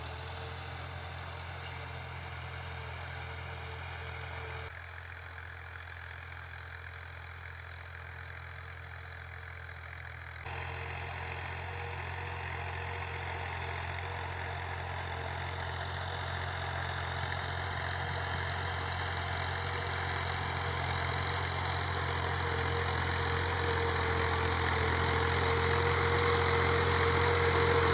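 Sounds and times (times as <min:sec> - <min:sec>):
tractor diesel engine: 0:00.0 - 0:27.9
constant whine: 0:10.6 - 0:27.9.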